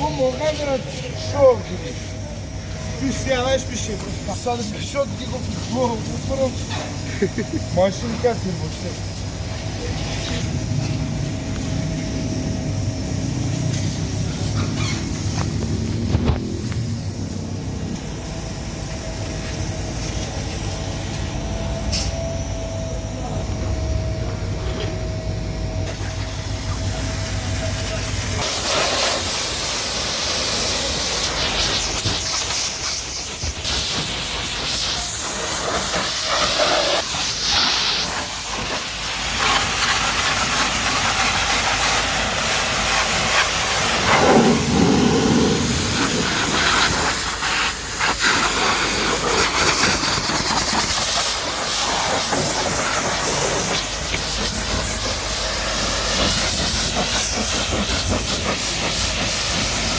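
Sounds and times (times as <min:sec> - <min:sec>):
pressure washer spraying water: 0:00.0 - 0:22.2, 0:25.9 - 0:59.9
low hum: 0:15.6 - 0:28.4.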